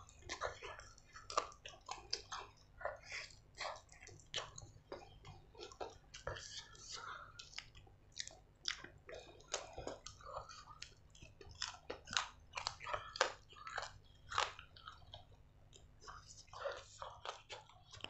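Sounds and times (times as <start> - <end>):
chewing chicken: 0.0 - 18.0
mouth clicks and smacks: 0.0 - 18.0.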